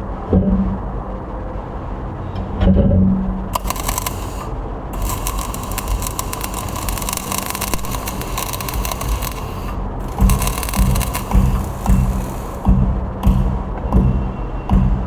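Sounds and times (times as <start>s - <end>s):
arc welding crackling: 3.5s - 12.7s.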